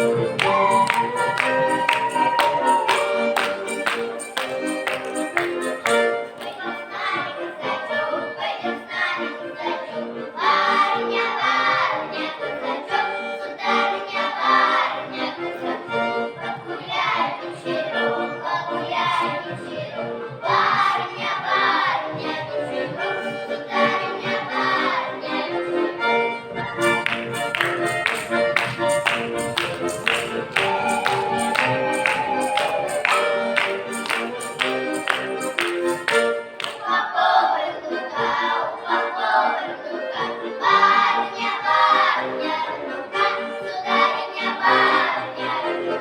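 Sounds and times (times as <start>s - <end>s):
sharp rhythmic taps: 0.0s - 6.6s, 26.8s - 36.8s
accordion: 0.0s - 46.0s
folk ensemble singing: 0.0s - 46.0s.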